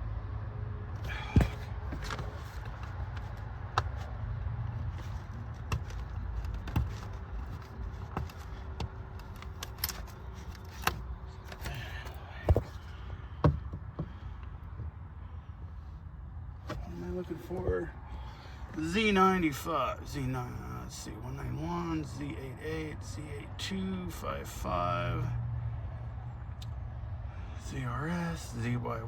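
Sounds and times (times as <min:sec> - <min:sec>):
clicks and knocks of handling: 0:01.0 - 0:04.1, 0:04.8 - 0:15.0.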